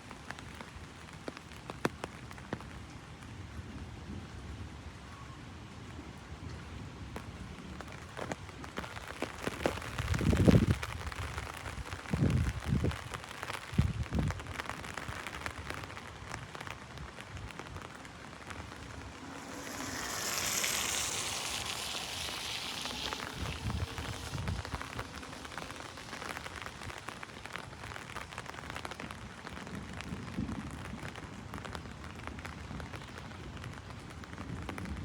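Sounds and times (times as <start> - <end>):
rain pattering on umbrella: 0.0 - 5.0, 5.6 - 35.0
hiss: 18.5 - 27.5.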